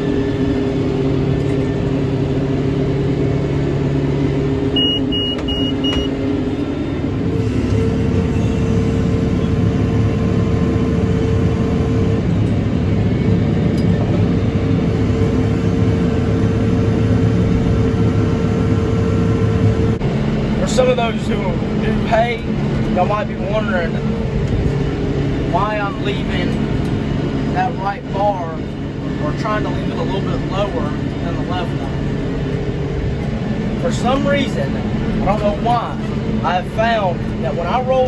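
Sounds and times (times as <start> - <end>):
tractor engine under load: 0.0 - 38.0
short high electronic beeps: 4.8 - 6.1.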